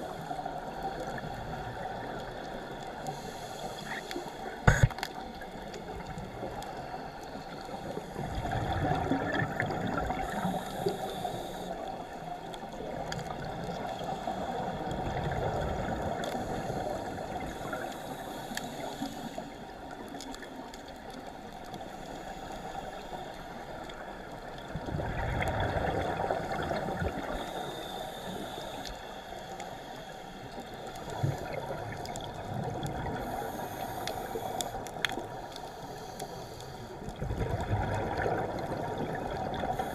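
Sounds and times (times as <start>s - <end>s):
regulator bubbles gurgling underwater: 0.0s - 39.9s
steady underwater hiss: 0.0s - 39.9s.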